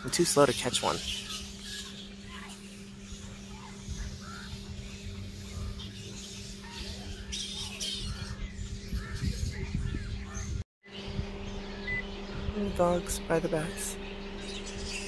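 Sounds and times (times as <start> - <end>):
flying foxes squawking: 0.0 - 15.0
steady low hum: 0.0 - 15.0.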